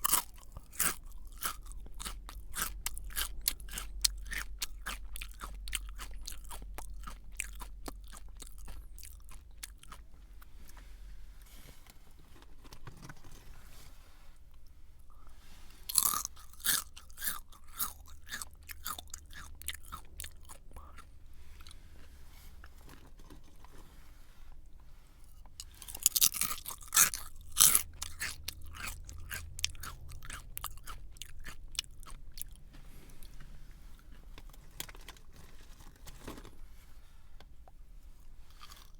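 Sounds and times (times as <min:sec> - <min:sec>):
person chewing crunchy snack: 0:00.0 - 0:10.9, 0:15.0 - 0:21.8, 0:25.2 - 0:33.4, 0:38.4 - 0:38.9.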